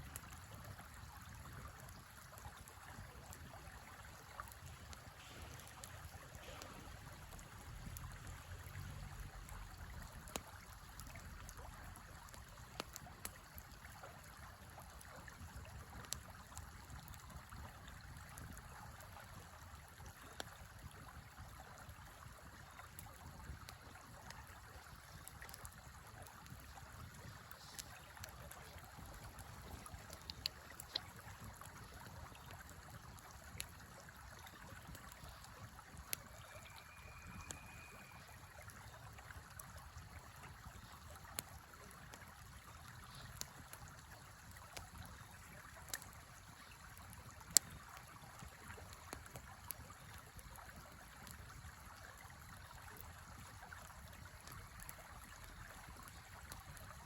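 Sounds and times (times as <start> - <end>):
campfire pops and crackles: 0.0 - 57.0
river flowing: 2.2 - 14.4, 24.1 - 50.2.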